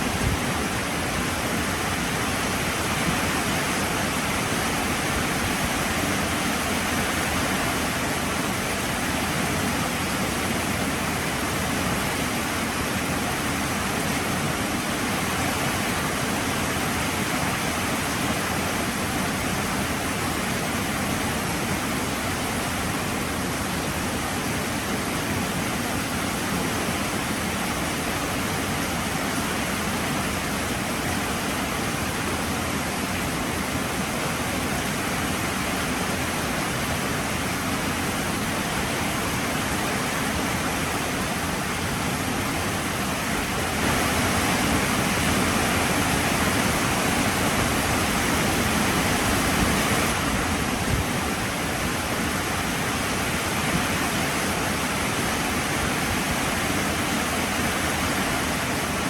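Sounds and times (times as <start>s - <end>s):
heavy rain falling: 40.3s - 59.0s.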